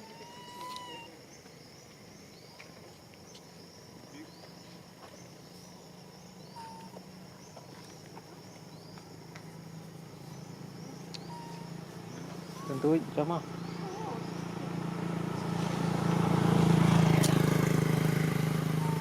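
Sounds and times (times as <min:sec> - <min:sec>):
whistle-like animal calls: 0:00.0 - 0:01.1, 0:12.5 - 0:13.1.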